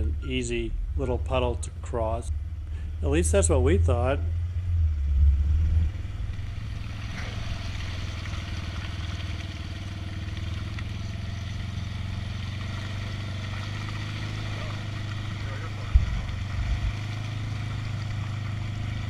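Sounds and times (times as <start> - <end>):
engine running at low speed: 0.0 - 19.0
vehicle driving into puddle: 6.2 - 19.0.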